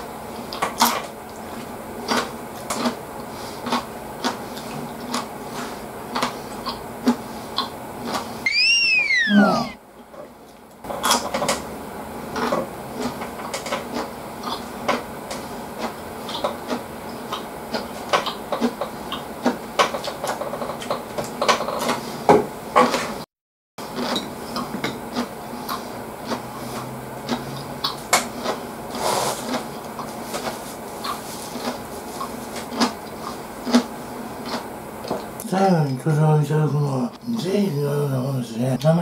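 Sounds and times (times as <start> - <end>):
man chewing food: 0.3 - 9.2, 12.2 - 22.2, 23.8 - 35.5.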